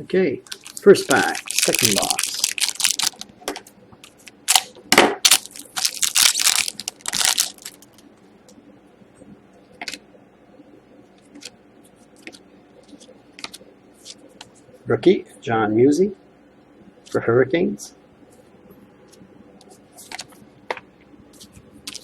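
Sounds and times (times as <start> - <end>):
wrapper crinkling and tearing: 0.5 - 3.3, 4.2 - 8.0
faint clicks of cards handled: 19.1 - 20.8.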